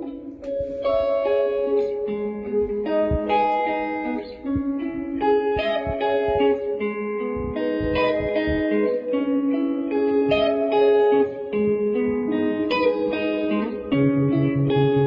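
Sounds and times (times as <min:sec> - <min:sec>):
guitar playing slow blues: 0:00.0 - 0:15.0
soft low thuds: 0:02.6 - 0:09.0.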